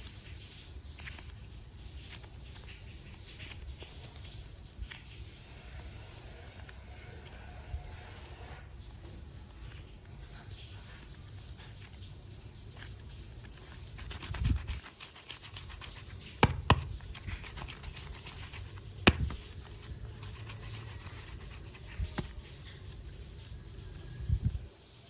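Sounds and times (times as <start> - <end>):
soft rustling: 0.0 - 25.0
dull bump: 19.0 - 19.5.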